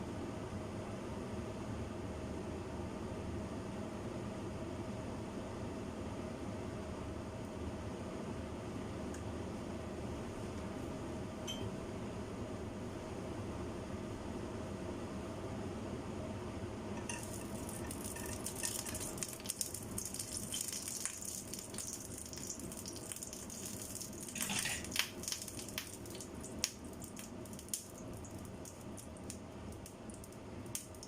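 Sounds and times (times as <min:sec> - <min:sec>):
steady low hum: 0:00.0 - 0:31.0
noodles sizzling in a pan: 0:17.0 - 0:31.0.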